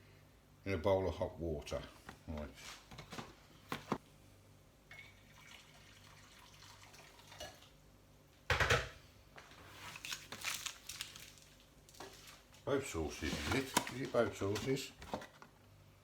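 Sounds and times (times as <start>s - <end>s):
handling noises: 1.9s - 4.0s, 9.4s - 15.6s
tap water splashing into bowl: 4.9s - 7.7s.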